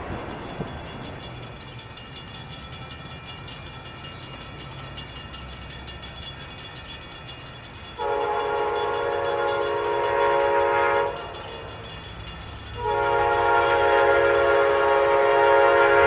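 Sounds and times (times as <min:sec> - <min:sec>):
diesel locomotive rumbling: 0:00.0 - 0:16.0
train air horn chord: 0:08.0 - 0:11.4, 0:12.8 - 0:16.0.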